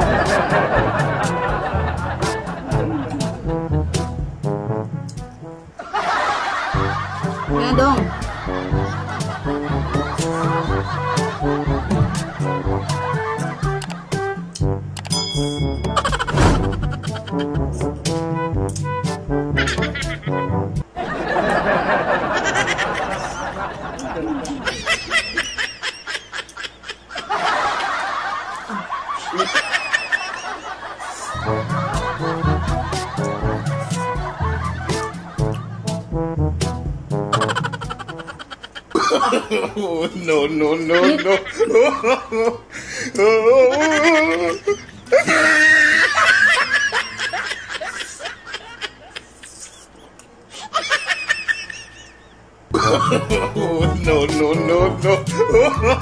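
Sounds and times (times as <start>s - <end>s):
high-pitched laughter: 16.0s - 17.6s, 19.6s - 20.3s, 21.4s - 31.4s, 37.3s - 40.0s, 40.8s - 42.6s, 43.2s - 53.6s, 55.1s - 56.0s.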